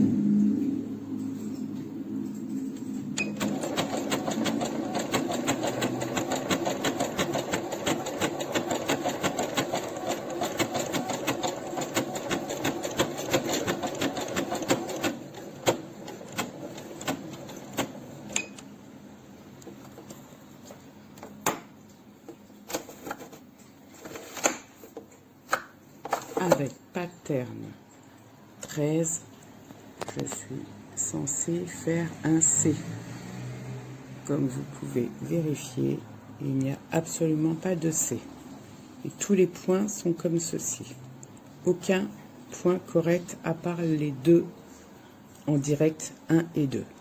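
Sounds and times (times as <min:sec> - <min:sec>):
sewing machine stitching: 0:03.2 - 0:18.6.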